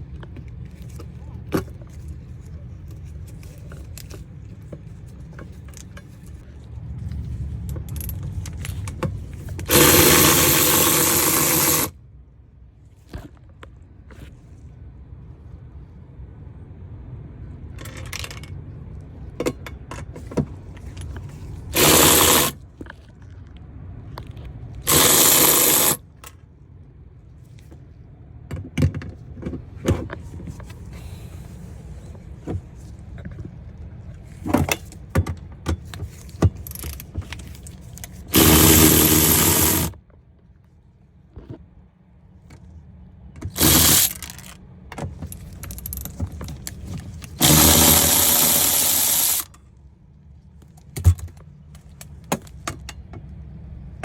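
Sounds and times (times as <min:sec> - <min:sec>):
tools and parts clinking: 0:07.5 - 0:11.9, 0:17.8 - 0:18.6, 0:19.3 - 0:23.4, 0:24.9 - 0:26.4, 0:34.4 - 0:40.0, 0:43.4 - 0:49.7
cordless power tool running: 0:09.7 - 0:11.9, 0:21.8 - 0:22.6, 0:24.9 - 0:26.0, 0:38.3 - 0:39.9, 0:43.5 - 0:44.4, 0:47.4 - 0:49.5.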